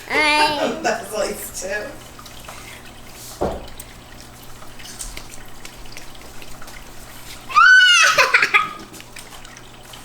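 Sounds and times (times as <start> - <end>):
water splashing and dripping: 0.8 - 10.0
soft thump: 3.4 - 3.7.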